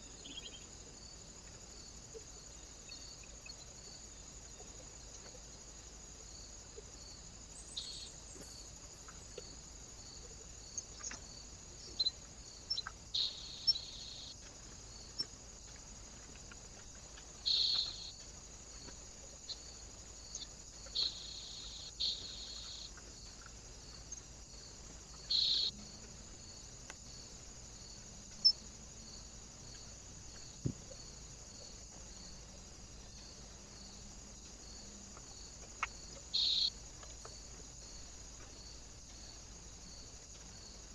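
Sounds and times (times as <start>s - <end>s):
faint steady hiss: 0.0s - 40.9s
small birds buzzy calls: 10.3s - 19.7s, 20.3s - 24.2s, 25.1s - 25.7s, 35.7s - 36.7s.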